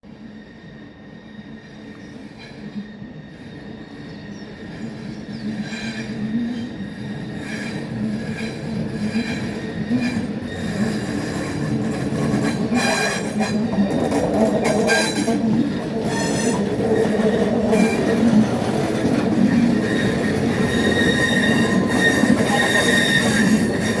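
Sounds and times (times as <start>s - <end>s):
train approaching: 0.0s - 24.0s
wheels squealing against rails: 0.1s - 24.0s
wheels clicking over rail joints: 8.9s - 24.0s.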